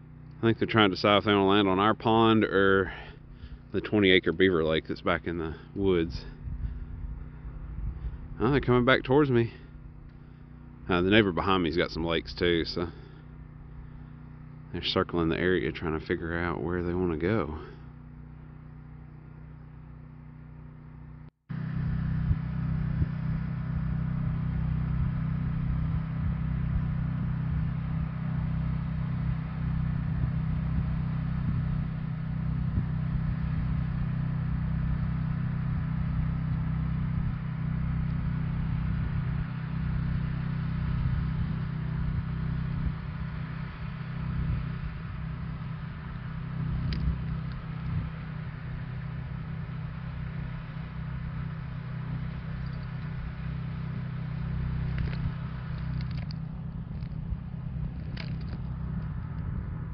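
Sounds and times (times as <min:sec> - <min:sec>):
engine humming: 0:00.0 - 0:59.9
small clicks: 0:54.8 - 0:57.2, 0:57.9 - 0:59.5.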